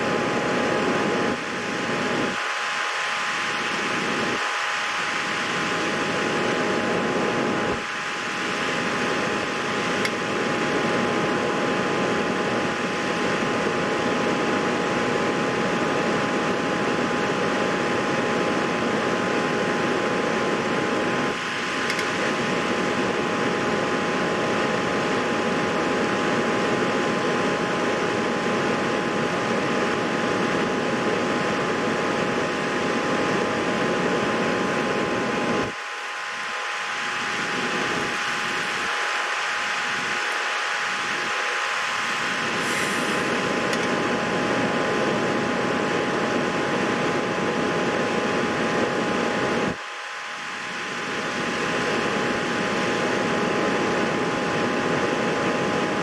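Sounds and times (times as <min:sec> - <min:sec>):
small click: 0:21.9 - 0:22.2
fan hiss: 0:29.5 - 0:55.8.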